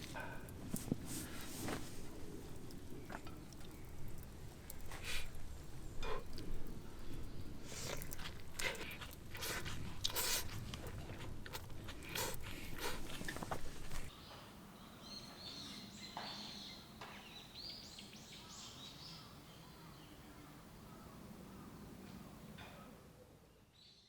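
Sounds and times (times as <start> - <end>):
crunching and rustling: 0.0 - 5.4, 7.4 - 14.1.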